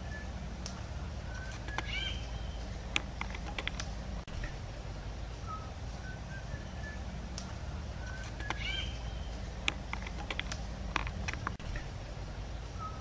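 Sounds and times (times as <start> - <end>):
small birds chirping: 0.0 - 13.0
steady low hum: 0.0 - 13.0
sharp clicks: 0.6 - 2.0, 2.7 - 4.0, 7.3 - 11.6.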